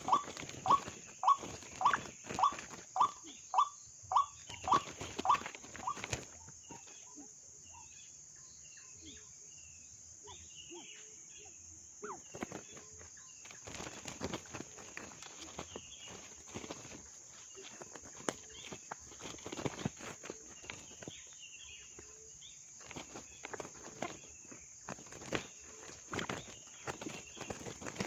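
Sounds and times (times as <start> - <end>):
waterhen sharp calls: 0.0 - 6.3
small birds chirping: 0.0 - 28.0
rustle of vegetation: 12.2 - 28.0.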